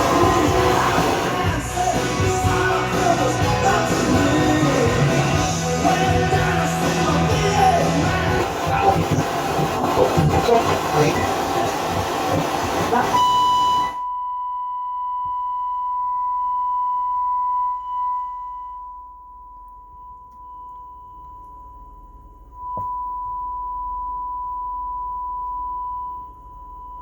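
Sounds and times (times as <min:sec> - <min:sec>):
sine-wave test tone: 0:13.1 - 0:27.0.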